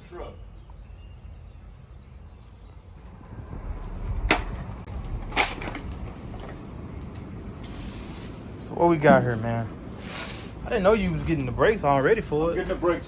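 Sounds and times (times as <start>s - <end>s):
low rumble: 3.1s - 8.1s.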